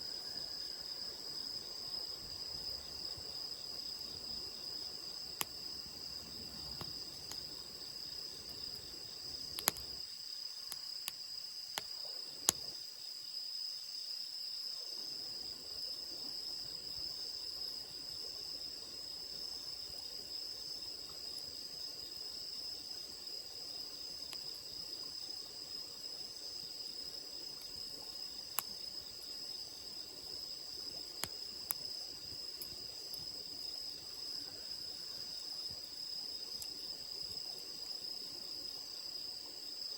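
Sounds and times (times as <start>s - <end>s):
insects chirring: 0.0s - 39.9s
campfire crackling: 5.2s - 10.0s, 30.1s - 33.4s.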